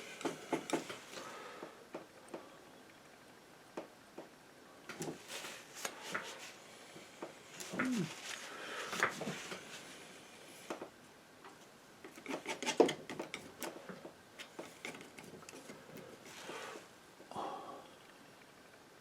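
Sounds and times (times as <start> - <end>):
palette knife scraping paint: 12.1 - 13.2.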